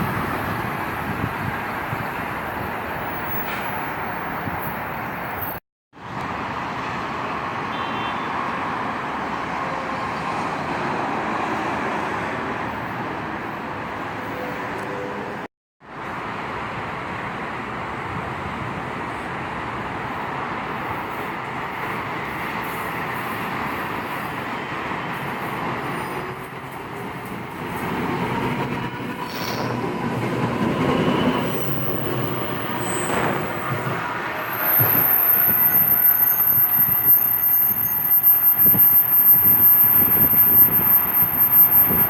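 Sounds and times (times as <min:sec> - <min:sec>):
train rolling past: 0:19.7 - 0:42.0.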